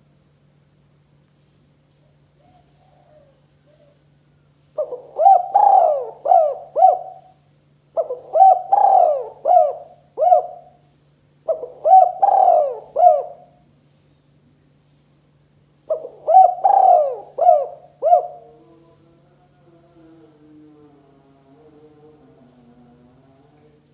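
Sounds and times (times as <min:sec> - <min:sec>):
dove cooing: 0:02.4 - 0:04.0, 0:04.8 - 0:07.4, 0:08.0 - 0:10.8, 0:11.5 - 0:13.6, 0:15.9 - 0:18.6.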